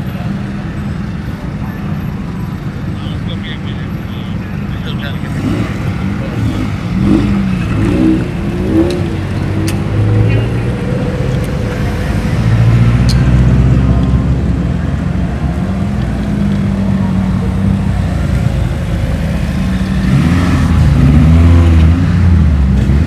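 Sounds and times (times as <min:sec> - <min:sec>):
car engine revving driving away: 0:04.6 - 0:23.0.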